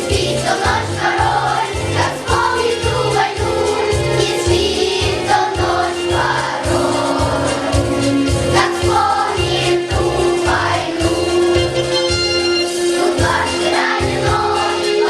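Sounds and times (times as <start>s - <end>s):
children's choir singing: 0.0s - 12.0s, 12.6s - 15.0s.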